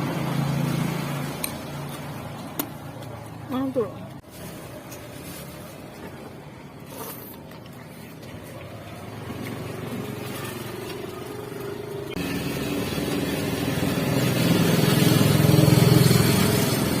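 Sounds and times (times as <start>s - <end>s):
motor vehicle engine passing: 0.0s - 3.2s, 8.4s - 17.0s.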